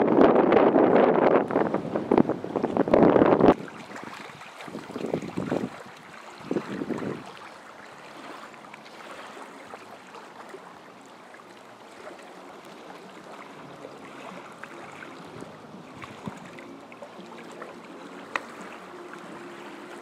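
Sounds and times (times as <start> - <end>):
wind rushing over microphone: 0.0 - 7.4.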